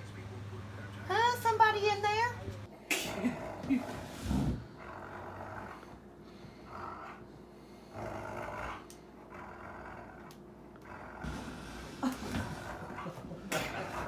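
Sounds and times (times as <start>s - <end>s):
dog sniffing and snorting: 3.1s - 14.0s.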